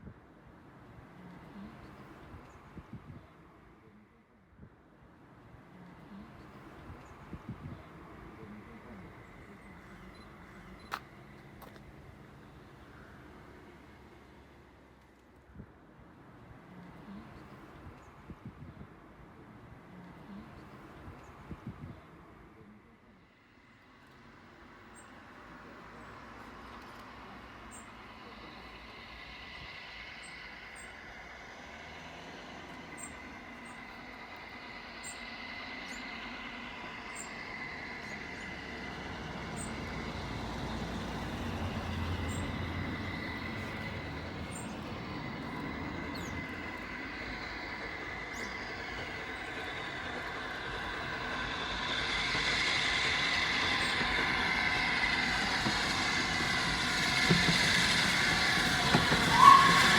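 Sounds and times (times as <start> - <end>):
train rumbling on rails: 0.0 - 59.9
high ringing of wheels on rails: 23.7 - 59.9.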